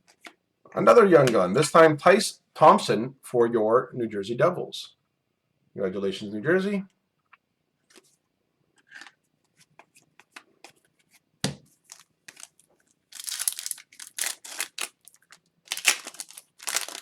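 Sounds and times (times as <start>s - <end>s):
foil wrapper crinkling and tearing: 11.8s - 17.0s.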